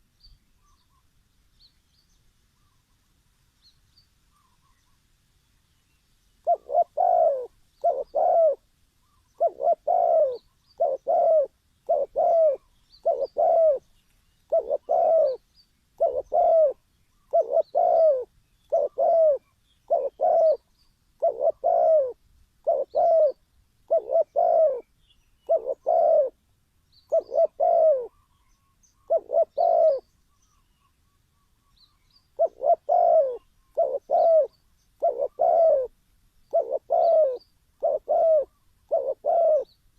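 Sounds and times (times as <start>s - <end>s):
dove cooing: 6.4s - 13.9s, 14.5s - 15.4s, 16.0s - 26.4s, 27.1s - 28.4s, 29.0s - 30.1s, 32.4s - 39.8s.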